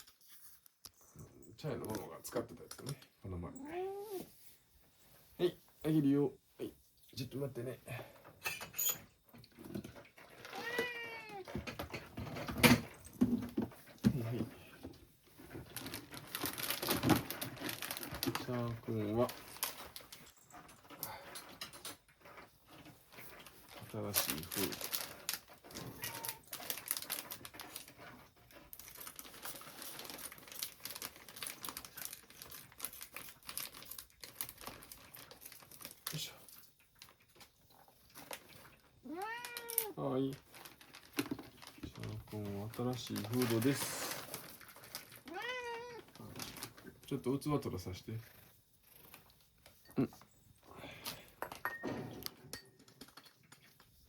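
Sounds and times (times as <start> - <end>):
light clicks and clatter: 0.0 - 3.3, 7.4 - 54.0
cat meowing: 3.6 - 4.3, 10.4 - 11.5, 25.8 - 26.6, 39.0 - 40.0, 45.2 - 46.1
plastic packaging crinkling: 15.2 - 21.0, 22.3 - 48.2.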